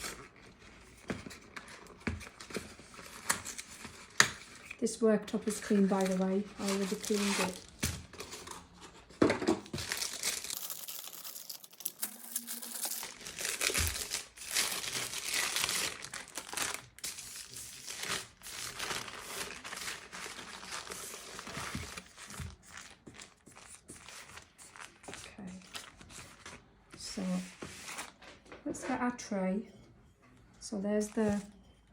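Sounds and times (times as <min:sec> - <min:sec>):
packaging crinkling: 0:05.5 - 0:08.7, 0:09.6 - 0:26.6.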